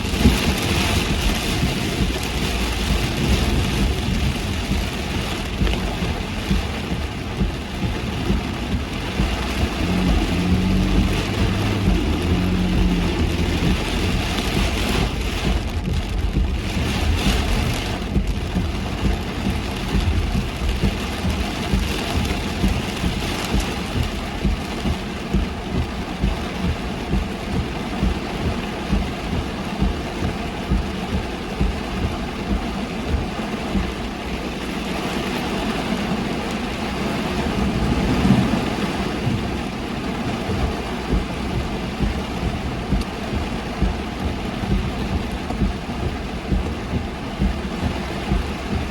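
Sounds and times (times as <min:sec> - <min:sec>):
car engine and tyres on wet road: 0:00.0 - 0:48.9
heavy rain on a car: 0:00.0 - 0:48.9.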